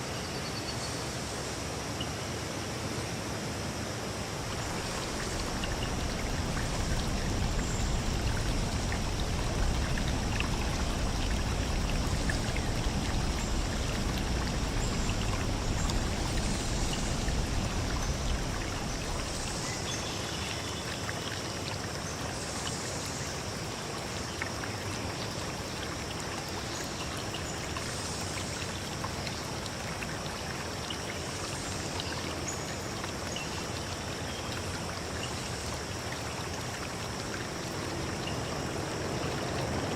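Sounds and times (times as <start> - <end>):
stream flowing and trickling: 0.0 - 39.9.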